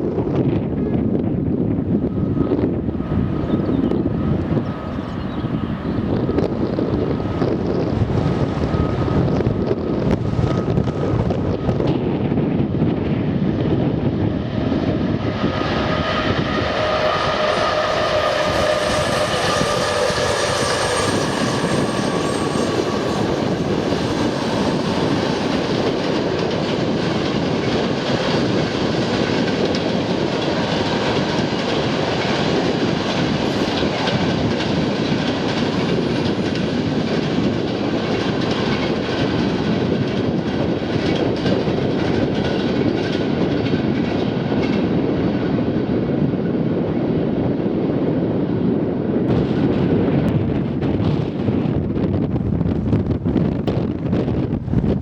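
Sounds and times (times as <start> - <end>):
train rushing past: 0.0 - 55.0
wind buffeting microphone: 0.0 - 55.0
train wheels clickety-clack: 14.7 - 46.6.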